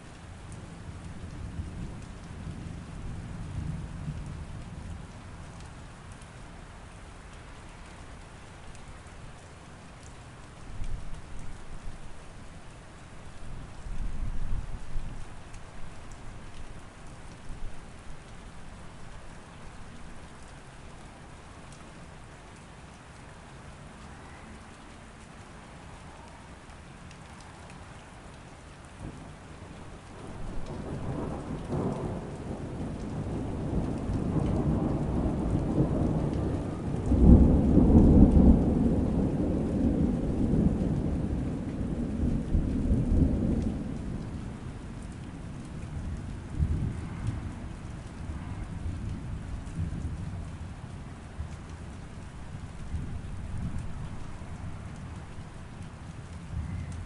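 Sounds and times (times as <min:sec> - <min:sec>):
steady rain: 0:00.0 - 0:57.0
thunder rumbling: 0:29.0 - 0:44.8, 0:45.4 - 0:51.5.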